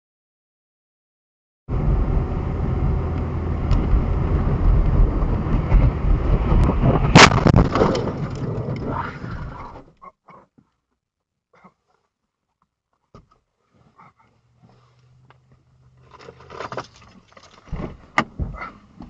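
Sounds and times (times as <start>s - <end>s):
vehicle engine and road rumble: 1.7s - 9.9s, 13.2s - 19.0s
loud crash impact: 6.8s - 8.5s
debris clattering: 6.9s - 9.0s.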